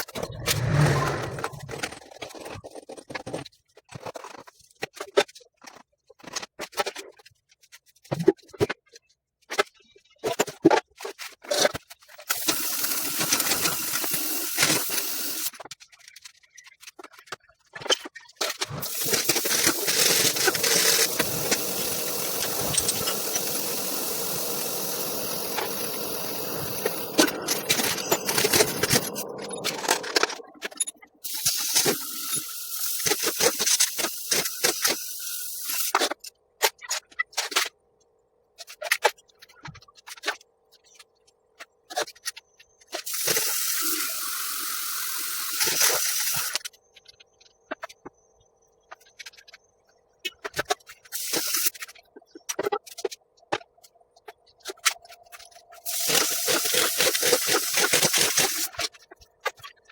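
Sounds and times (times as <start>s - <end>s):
spray hissing: 18.8s - 29.3s.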